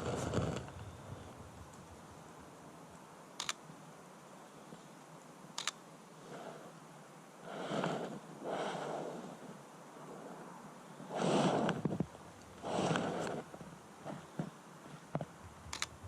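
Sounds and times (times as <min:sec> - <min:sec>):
noisy swishes: 0:00.0 - 0:02.6, 0:07.6 - 0:14.2
camera shutter clicks: 0:03.4 - 0:03.6, 0:05.6 - 0:05.8, 0:15.7 - 0:15.9.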